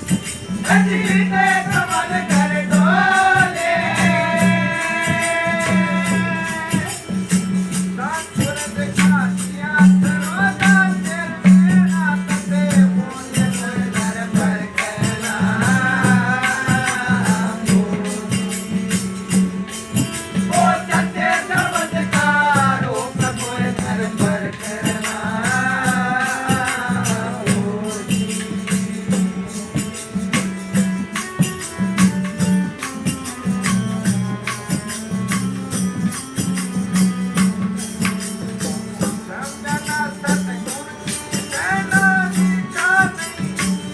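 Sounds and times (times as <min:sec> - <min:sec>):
jingling hand percussion: 0:00.0 - 0:43.9
person singing: 0:00.7 - 0:07.1.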